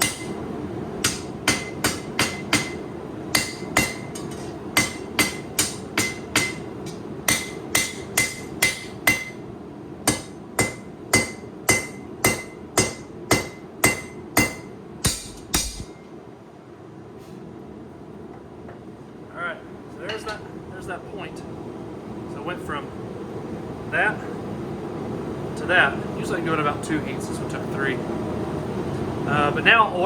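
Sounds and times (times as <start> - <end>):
hammer striking blade on anvil: 0.0 - 0.4, 1.0 - 2.8, 3.4 - 9.4, 10.1 - 16.0
steady hum: 0.0 - 30.0.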